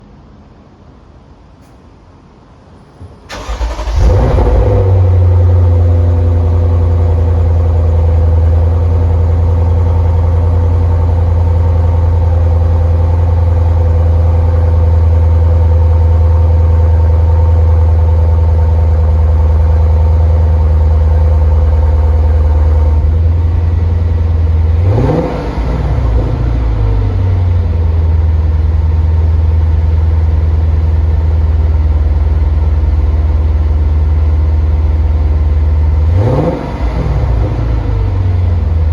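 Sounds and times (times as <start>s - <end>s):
car engine starting and idling: 2.7s - 38.9s.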